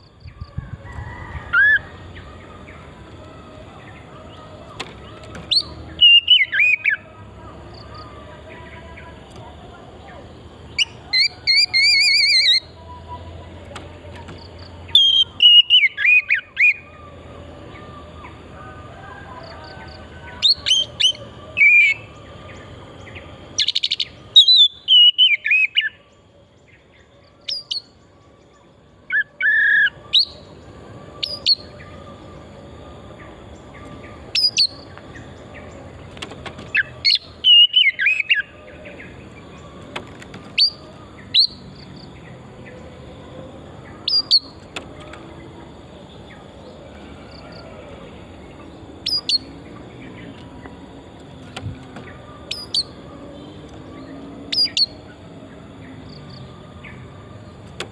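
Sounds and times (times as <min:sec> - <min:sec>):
bird singing whistled phrases: 0:10.8 - 0:12.8, 0:23.6 - 0:26.0, 0:36.8 - 0:38.5.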